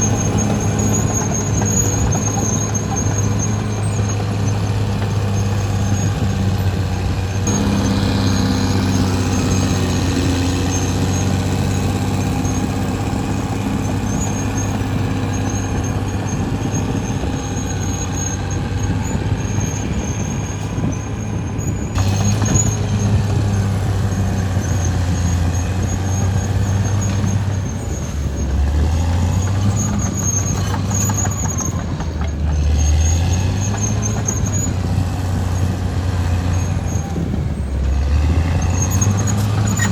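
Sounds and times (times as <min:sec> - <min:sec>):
bulldozer diesel engine: 0:00.0 - 0:39.9
high-pitched track squeal: 0:00.0 - 0:39.9.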